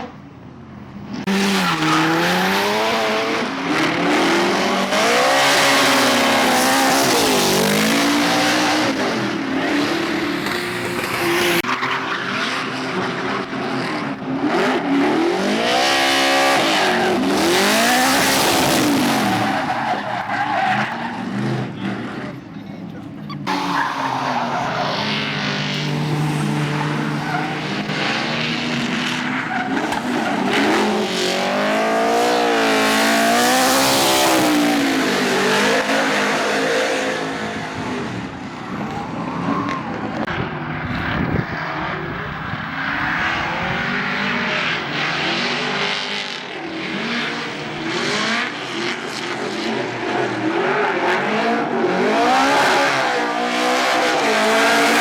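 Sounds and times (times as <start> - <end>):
tyres squealing and skidding: 1.3 - 55.0
car engine revving: 12.6 - 55.0.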